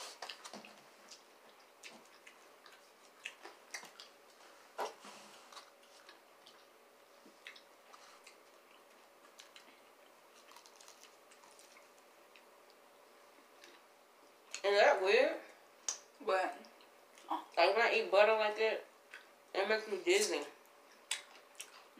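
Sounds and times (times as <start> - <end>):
chewing with mouth clicks: 0.0 - 12.9, 19.0 - 19.4, 20.6 - 21.9
faint steady hum: 0.0 - 21.9.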